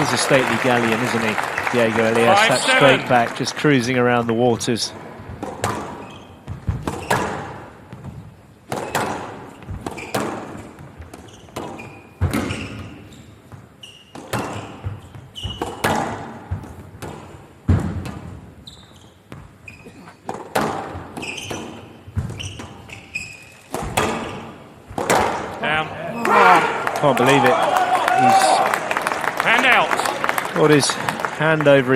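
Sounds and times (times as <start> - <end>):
shoes squeaking on court floor: 5.2 - 25.5
squash ball cracking off rackets: 23.6 - 25.6.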